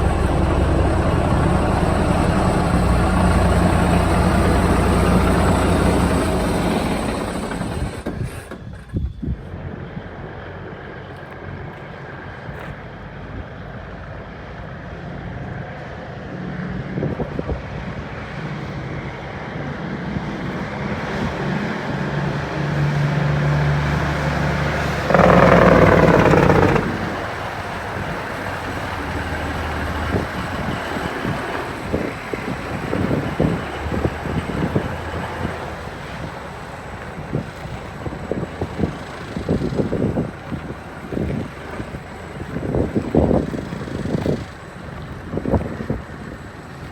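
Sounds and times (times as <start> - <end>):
loud engine burst: 0.0 - 5.4
diesel truck engine running: 0.0 - 7.8, 23.7 - 35.8.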